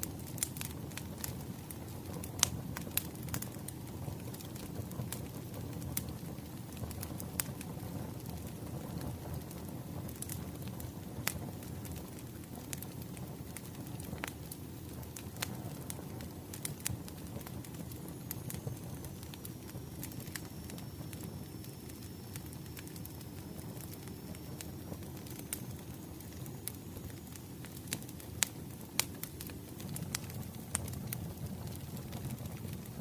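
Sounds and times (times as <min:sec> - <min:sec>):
wood fire crackling: 0:00.0 - 0:33.0
firewood popping and snapping: 0:23.8 - 0:33.0.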